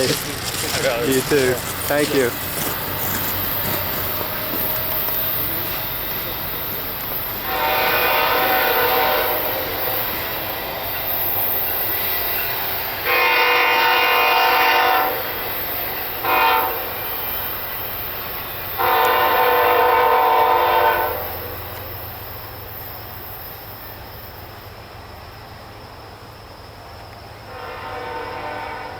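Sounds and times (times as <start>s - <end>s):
train rumbling: 0.0s - 28.9s
locomotive air horn blasts: 7.3s - 10.2s, 13.0s - 15.4s, 16.2s - 17.0s, 18.8s - 21.6s, 27.5s - 28.9s.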